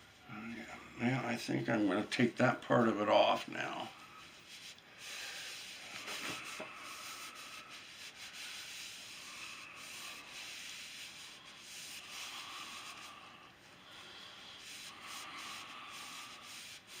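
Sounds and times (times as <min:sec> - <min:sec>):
towel scrubbing wood: 0:03.6 - 0:17.0.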